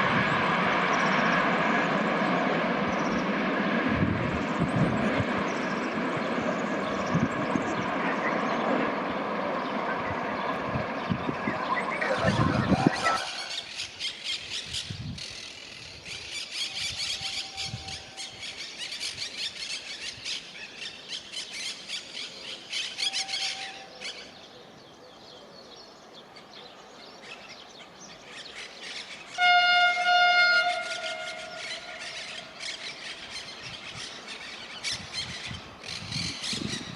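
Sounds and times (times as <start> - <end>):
train wheels screeching: 22.8 - 24.1, 29.2 - 33.5.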